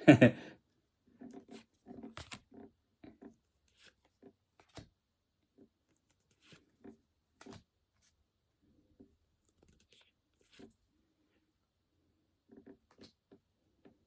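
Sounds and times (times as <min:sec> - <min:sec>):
trading cards clicking and rustling: 0:01.3 - 0:02.6.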